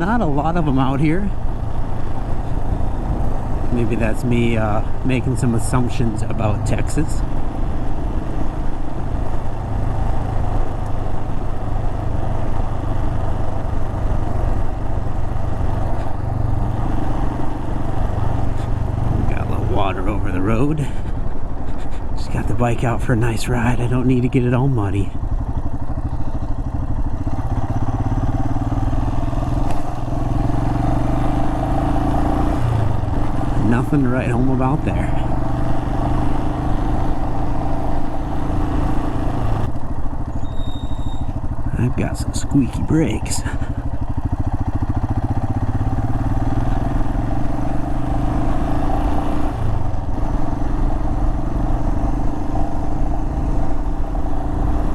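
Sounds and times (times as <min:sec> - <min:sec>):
motorcycle engine running: 0:00.0 - 0:54.9
brakes squealing: 0:02.1 - 0:07.3, 0:15.6 - 0:37.8, 0:38.4 - 0:49.3.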